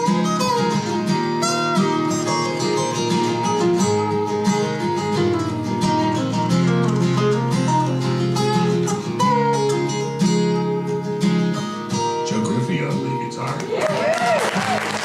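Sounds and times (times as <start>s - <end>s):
strummed acoustic rhythm guitar: 0.0s - 13.7s
lead guitar solo with bent notes: 0.0s - 15.0s.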